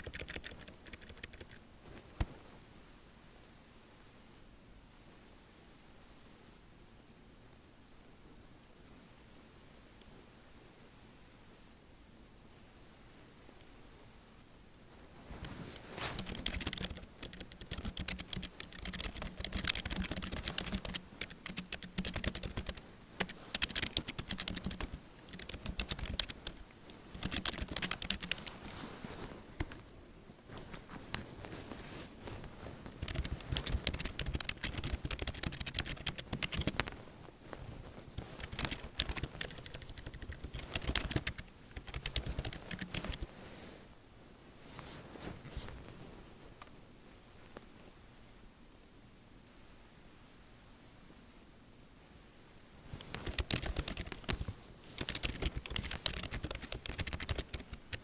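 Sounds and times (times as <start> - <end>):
computer keyboard typing: 0.0 - 1.6, 15.4 - 28.8, 32.6 - 37.0, 38.2 - 43.3, 52.9 - 58.0.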